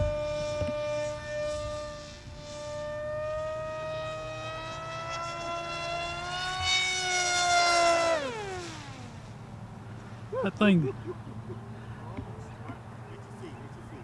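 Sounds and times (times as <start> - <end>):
model airplane motor whine: 0.0 - 10.3.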